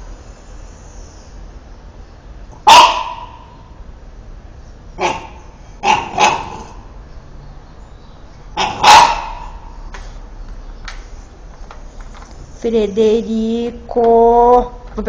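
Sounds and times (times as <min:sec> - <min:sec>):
dog barking: 0:02.6 - 0:03.7, 0:05.0 - 0:06.9, 0:08.5 - 0:09.8.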